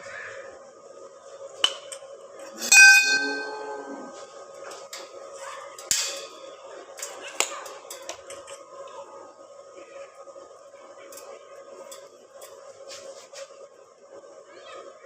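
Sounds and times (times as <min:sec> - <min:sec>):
faint steady hum: 0:00.0 - 0:15.0
metallic clang ringing: 0:01.6 - 0:04.2, 0:05.8 - 0:06.6.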